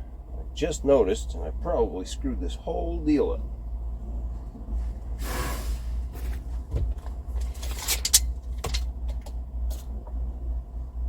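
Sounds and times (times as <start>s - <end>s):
steady low hum: 0.0s - 11.0s
rustling scrapes: 4.7s - 8.8s
sharp clicks and knocks: 6.7s - 10.2s.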